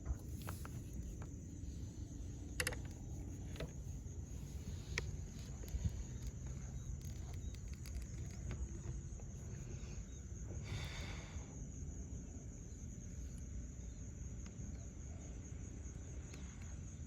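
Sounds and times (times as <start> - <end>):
small clicks and knocks: 0.0 - 9.6
high insect drone: 0.0 - 17.0.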